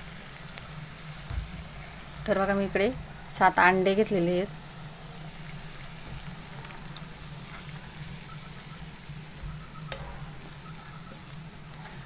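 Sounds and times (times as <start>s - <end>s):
eggs sizzling in oil: 0.0s - 12.0s.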